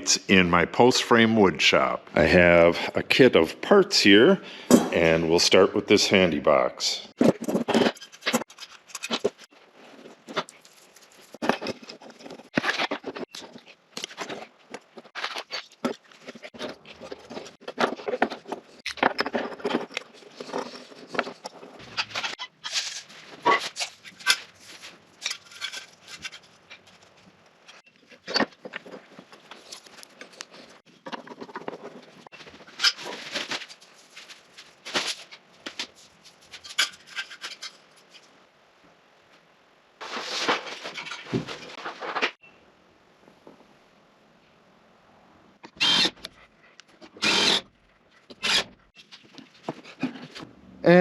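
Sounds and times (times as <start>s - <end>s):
clicks and knocks of handled parts: 7.2s - 38.3s.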